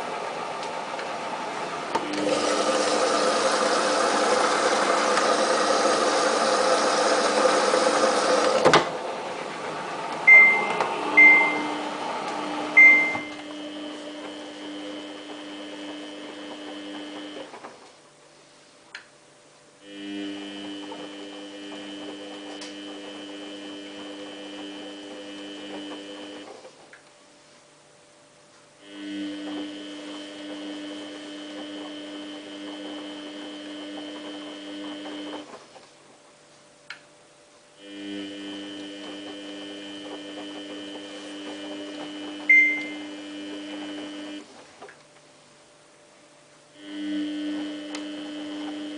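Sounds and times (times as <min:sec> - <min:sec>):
washing machine humming: 0:00.0 - 0:48.9
short high tone: 0:10.3 - 0:11.8, 0:12.8 - 0:13.4.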